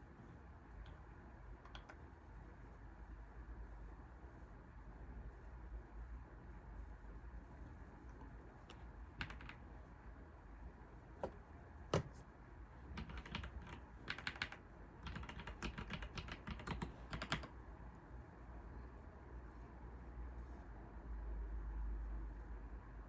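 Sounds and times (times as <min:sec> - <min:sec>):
keyboard typing: 0:01.6 - 0:02.0, 0:08.6 - 0:09.6, 0:12.9 - 0:17.6.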